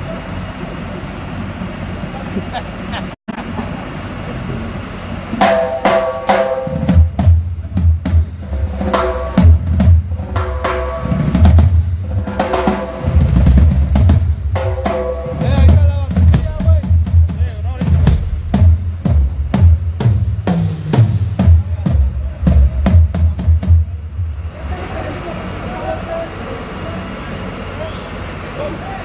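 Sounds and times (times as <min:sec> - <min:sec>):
drum kit beat with fills: 0:05.4 - 0:24.2.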